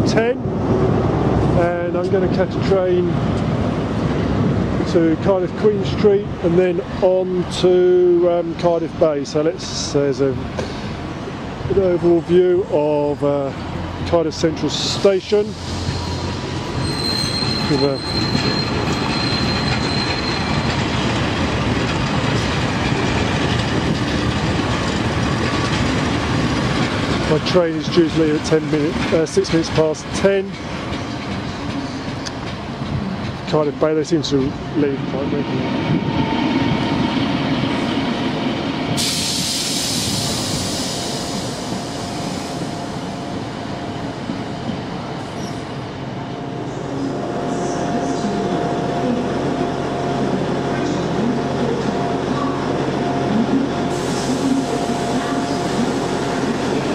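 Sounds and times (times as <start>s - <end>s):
train engine and wheels rumbling: 0.0s - 56.9s
high hissing squeal: 14.9s - 20.6s, 39.0s - 43.1s
high-pitched wheel squeal: 15.8s - 20.7s, 35.6s - 37.2s.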